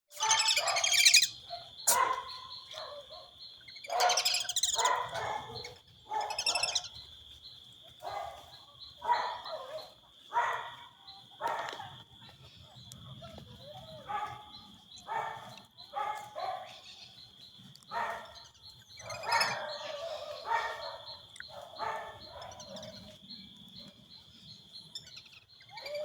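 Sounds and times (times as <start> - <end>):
ducks calling harshly: 0.1 - 2.8, 3.8 - 7.0.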